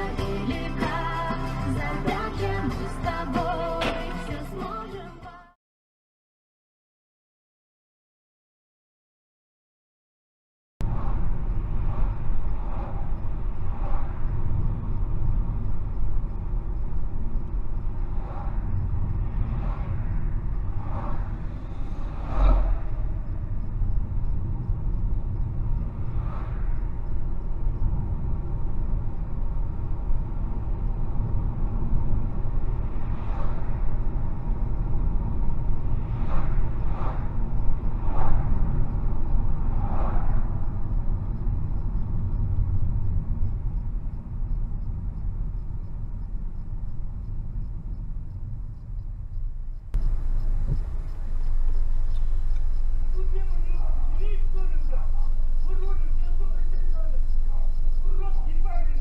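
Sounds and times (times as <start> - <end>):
moving car rumble: 0.0 - 5.4, 10.8 - 59.0.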